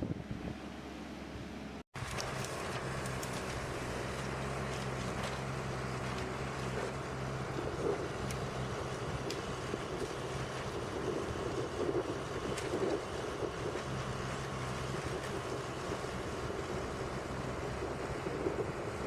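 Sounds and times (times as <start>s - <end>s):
heavy engine running: 0.1s - 19.0s.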